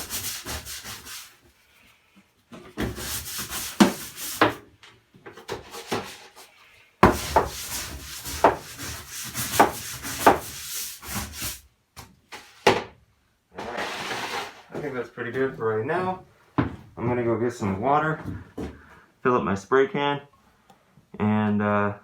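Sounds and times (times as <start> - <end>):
hand tool scraping wood: 0.0 - 1.4, 2.8 - 4.6, 5.5 - 11.6, 13.6 - 14.7.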